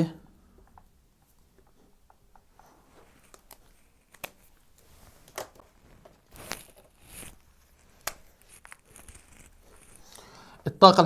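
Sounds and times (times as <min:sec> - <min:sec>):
pen tapping and scratching: 0:01.6 - 0:10.4.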